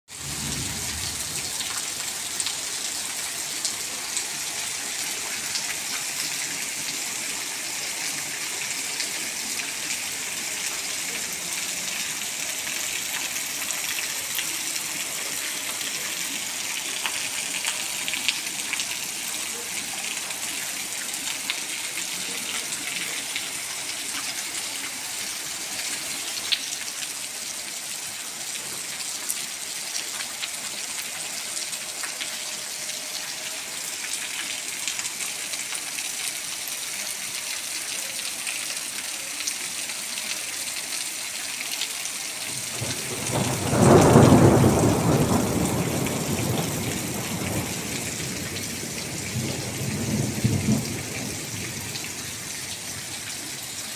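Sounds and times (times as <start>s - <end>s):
rain hissing on wet road: 0.1s - 53.9s
thunder rumble: 0.2s - 1.6s, 42.8s - 51.9s.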